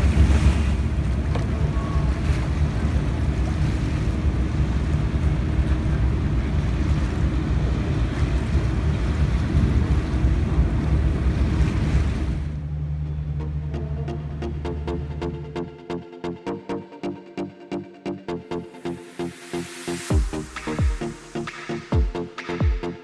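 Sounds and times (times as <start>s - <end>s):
wind rushing over microphone: 0.0s - 12.6s
music with steady beat: 18.8s - 23.0s.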